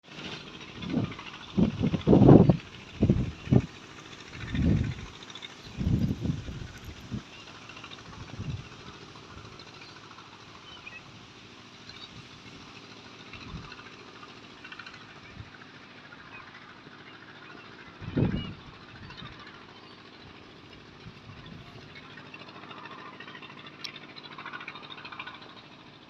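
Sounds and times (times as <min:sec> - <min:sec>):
low rumble: 0:00.4 - 0:07.3.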